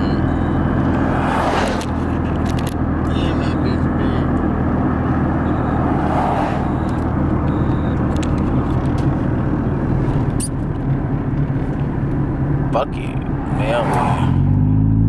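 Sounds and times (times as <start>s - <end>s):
car engine drone: 0.0s - 15.0s
road noise rushing: 0.0s - 15.0s.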